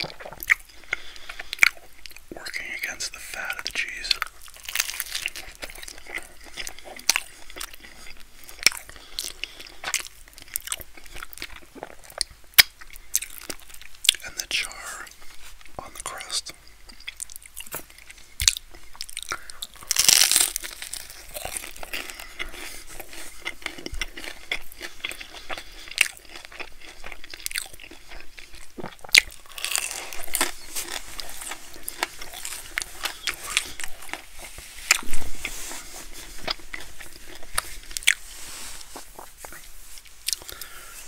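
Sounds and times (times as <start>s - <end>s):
wet crackly chewing: 0.0s - 14.3s, 15.1s - 41.0s
loud bread crunches: 4.3s - 11.8s, 18.4s - 39.5s.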